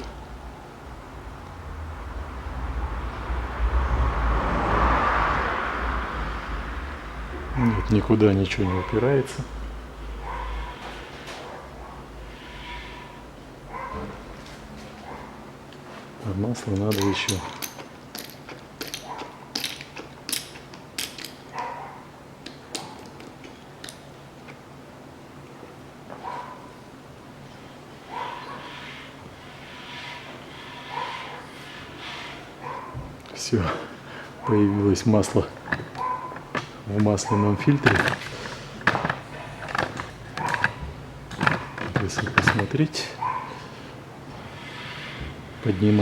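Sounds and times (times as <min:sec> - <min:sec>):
vehicle passing: 0:00.2 - 0:13.2, 0:27.9 - 0:46.0.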